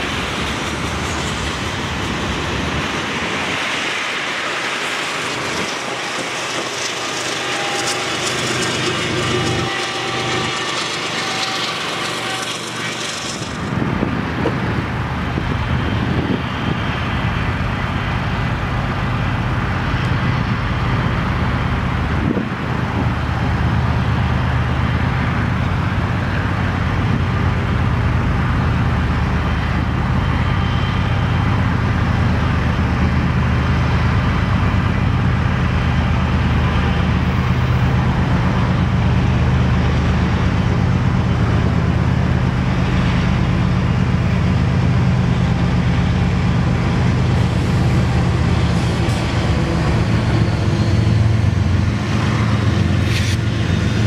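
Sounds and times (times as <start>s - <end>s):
freight train wheels clacking: 0.0s - 54.0s
low diesel rumble: 0.0s - 54.0s.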